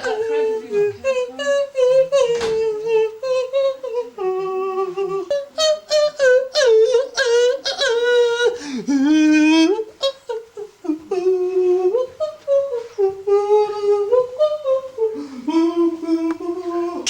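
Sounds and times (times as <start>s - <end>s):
person humming: 0.0s - 17.0s.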